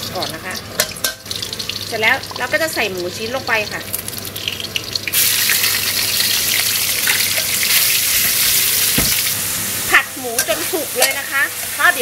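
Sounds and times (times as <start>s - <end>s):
meat sizzling in a wok: 0.0s - 12.0s
dull knock: 9.0s - 9.3s.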